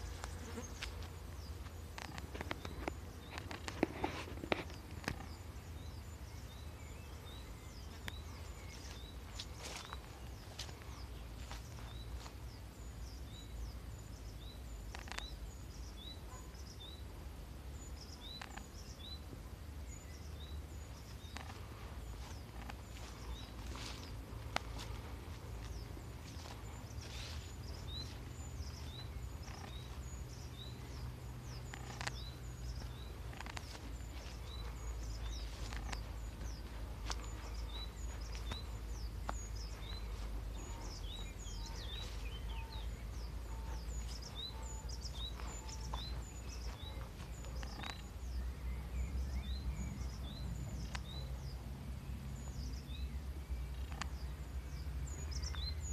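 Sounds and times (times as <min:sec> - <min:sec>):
footsteps through undergrowth: 0:00.0 - 0:13.4, 0:20.9 - 0:49.6
small birds chirping: 0:00.0 - 0:55.9
low microphone rumble: 0:16.8 - 0:55.9.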